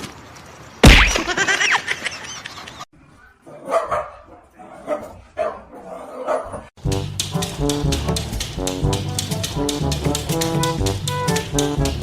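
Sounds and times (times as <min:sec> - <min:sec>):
loud bang: 0:00.8 - 0:01.4
dog barking: 0:03.2 - 0:06.7.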